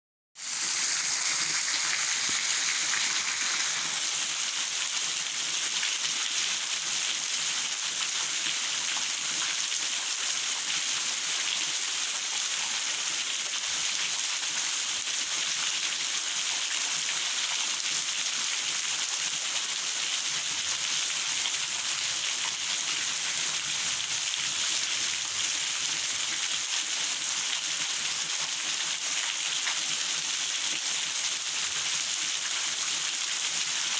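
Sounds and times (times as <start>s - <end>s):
steady rain falling: 0.5s - 13.1s.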